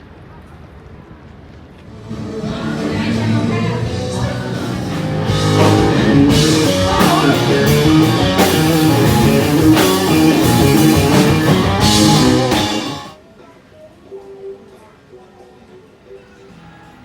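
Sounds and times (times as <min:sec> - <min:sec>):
drum kit: 0:01.9 - 0:13.2
rock music: 0:01.9 - 0:13.2
guitar: 0:01.9 - 0:14.8.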